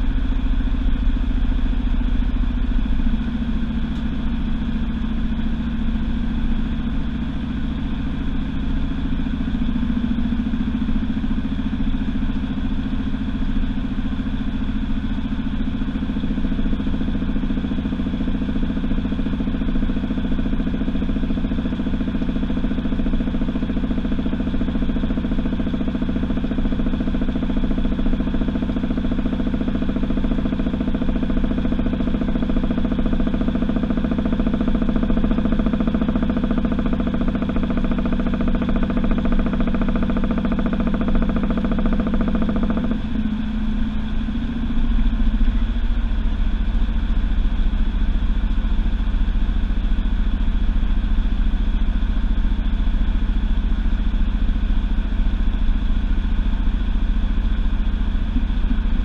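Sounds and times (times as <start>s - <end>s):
deep rumble: 0.0s - 51.0s, 55.5s - 59.0s
washing machine motor hum: 0.0s - 59.0s.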